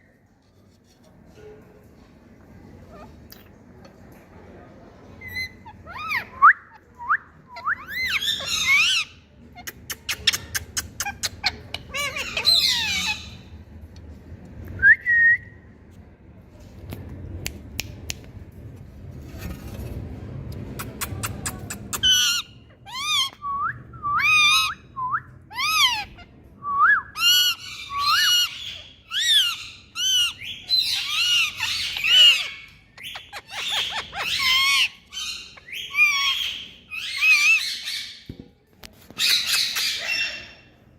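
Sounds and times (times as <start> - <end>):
parakeet squawking and shrieking: 5.2 - 6.4, 7.8 - 13.6, 21.5 - 23.4, 24.2 - 24.9, 25.5 - 26.3, 27.2 - 38.3, 39.2 - 40.8.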